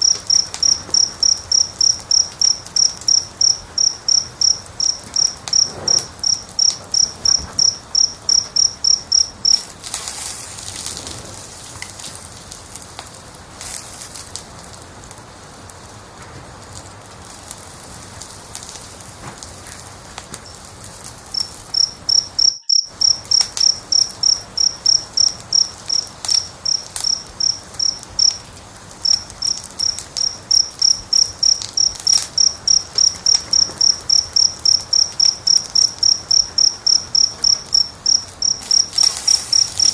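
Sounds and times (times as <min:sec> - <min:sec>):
insect chirping: 0:00.0 - 0:12.2, 0:20.4 - 0:39.9
wood fire crackling: 0:00.0 - 0:39.9.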